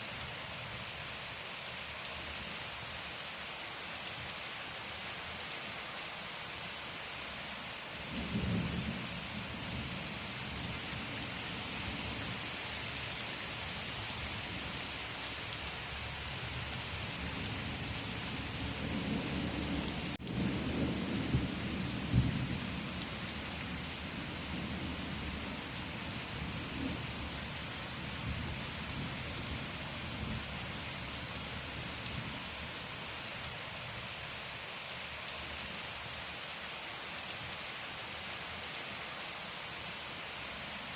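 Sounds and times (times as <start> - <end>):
thunder rumbling: 18.6 - 22.9.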